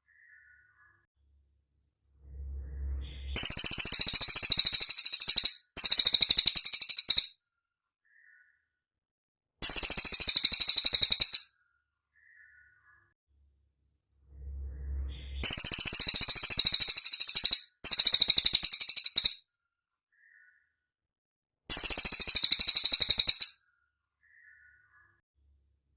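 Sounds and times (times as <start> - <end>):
bird high-pitched rapid trills: 2.4 - 7.3, 9.6 - 11.5, 14.9 - 19.4, 21.7 - 23.6.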